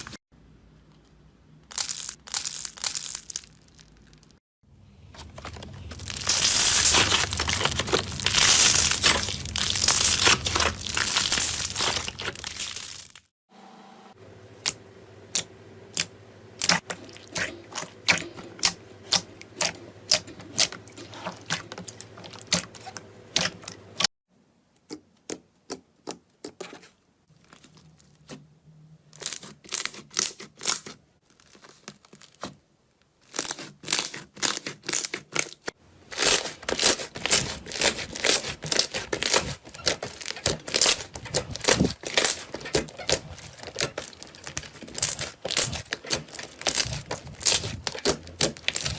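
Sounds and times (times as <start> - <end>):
slime crackling and popping: 5.6 - 13.3, 36.2 - 48.9.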